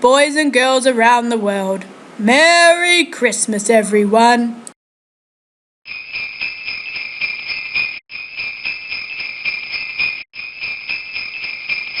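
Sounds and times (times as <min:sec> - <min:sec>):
sleigh bells jingling: 0:05.9 - 0:12.0.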